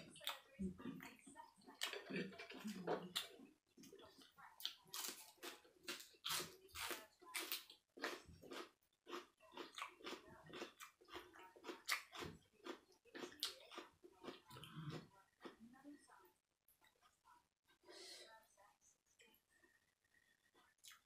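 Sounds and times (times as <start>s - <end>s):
person chewing crisp vegetables: 0.0s - 15.6s, 20.5s - 21.0s.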